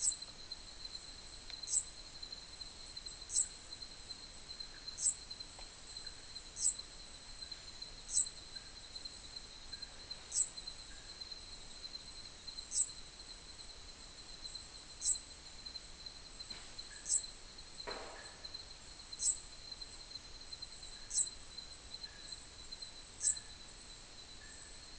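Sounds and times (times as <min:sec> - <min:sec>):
cricket trill: 0:00.0 - 0:24.9
sharp high insect chirp: 0:01.6 - 0:01.9, 0:03.0 - 0:03.6, 0:04.7 - 0:05.3, 0:06.0 - 0:06.8, 0:08.1 - 0:08.8, 0:09.7 - 0:11.4, 0:12.6 - 0:13.0, 0:14.4 - 0:19.9, 0:20.6 - 0:23.6.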